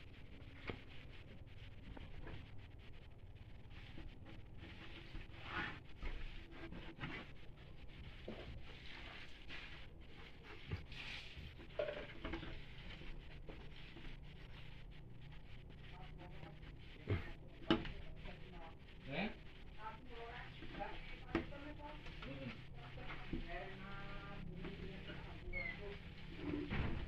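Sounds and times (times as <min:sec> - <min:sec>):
scraping and rustling on wood: 0:03.6 - 0:18.3, 0:20.3 - 0:27.0.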